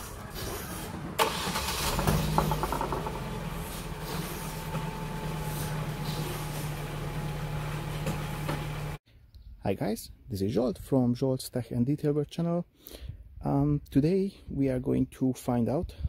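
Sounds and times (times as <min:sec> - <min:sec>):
car engine starting and idling: 0:00.0 - 0:09.0.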